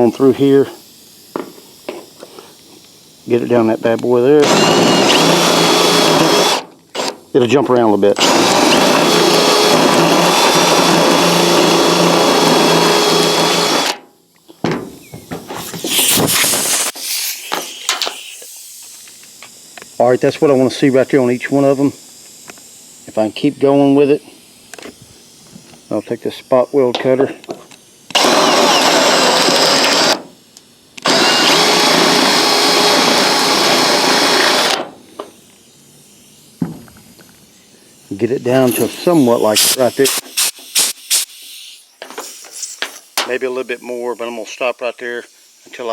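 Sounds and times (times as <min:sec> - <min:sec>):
electric drill cutting sheet steel: 0:04.2 - 0:07.2, 0:08.2 - 0:14.0, 0:28.1 - 0:30.3, 0:31.0 - 0:34.9, 0:38.5 - 0:41.9.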